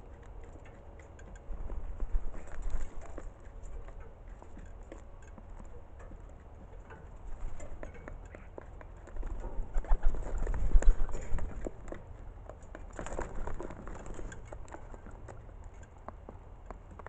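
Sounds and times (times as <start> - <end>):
small taps and pattering: 0.0 - 17.0
pigeon cooing: 9.6 - 11.2.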